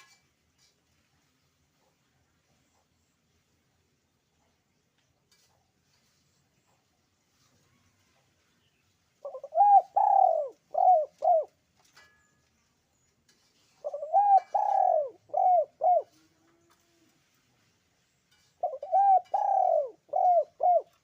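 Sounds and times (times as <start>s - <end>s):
dove cooing: 9.2s - 11.6s, 13.8s - 16.9s, 18.6s - 21.0s.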